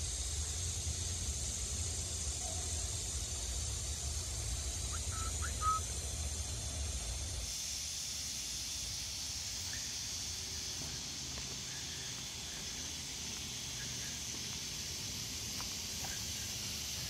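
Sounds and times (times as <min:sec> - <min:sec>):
steady high hiss: 0:00.0 - 0:17.0
bird chirps: 0:04.8 - 0:05.9.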